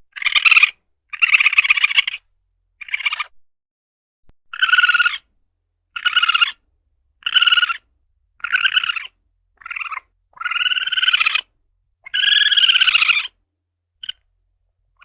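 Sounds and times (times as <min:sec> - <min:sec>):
civet calling: 0:00.1 - 0:03.4, 0:04.5 - 0:05.3, 0:05.9 - 0:06.6, 0:07.2 - 0:13.4, 0:14.0 - 0:14.3.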